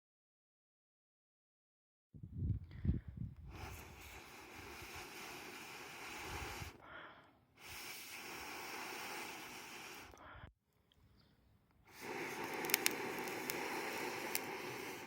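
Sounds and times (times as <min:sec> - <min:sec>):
food sizzling over fire: 0:11.9 - 0:15.0.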